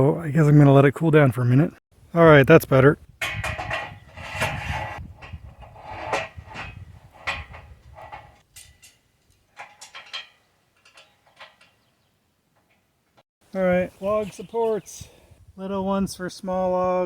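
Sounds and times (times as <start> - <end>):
steel parts and tools clanking: 3.2 - 13.2.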